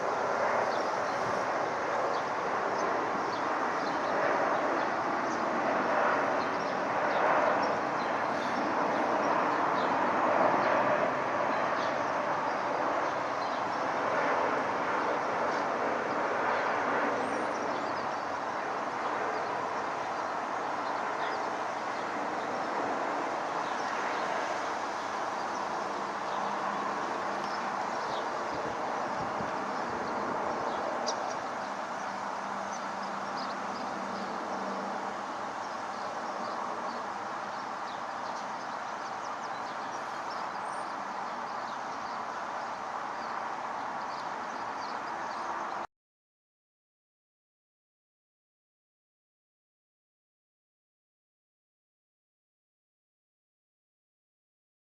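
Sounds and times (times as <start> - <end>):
jet engine rumble: 0.0 - 44.5.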